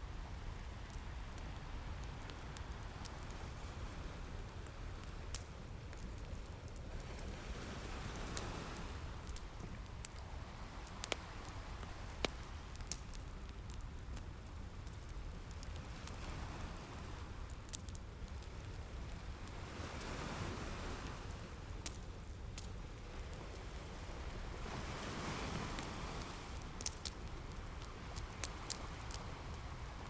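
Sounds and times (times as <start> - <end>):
low rumble of surf: 0.0 - 30.0
wood fire crackling: 0.2 - 30.0
ocean waves washing in: 23.8 - 30.0.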